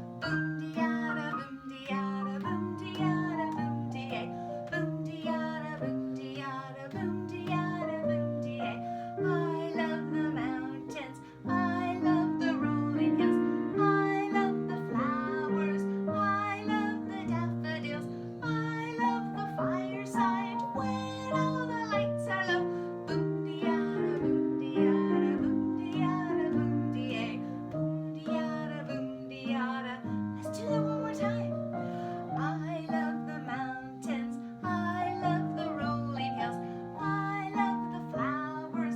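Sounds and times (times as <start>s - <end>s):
person singing children's song: 0.4s - 38.9s.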